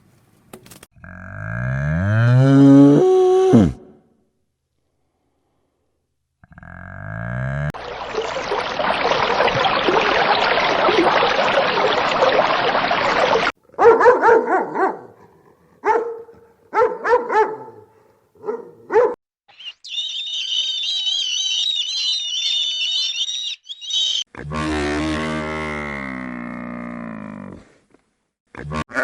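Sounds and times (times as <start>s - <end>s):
dog barking: 13.7s - 19.2s.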